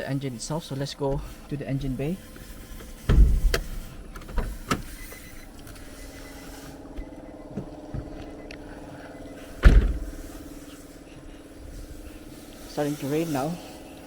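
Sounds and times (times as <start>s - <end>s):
car engine running: 0.0s - 14.0s
loud heavy thump: 3.1s - 3.7s, 9.6s - 10.1s.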